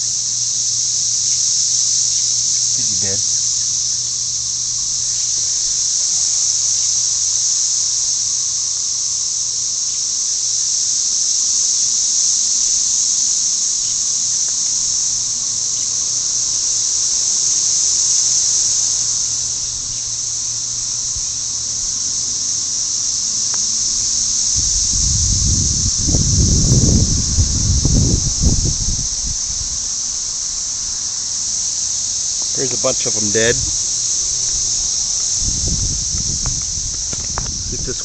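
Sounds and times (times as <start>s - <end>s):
cicadas shrill drone: 0.0s - 38.0s
low rumble on microphone: 24.6s - 29.7s, 33.5s - 38.0s.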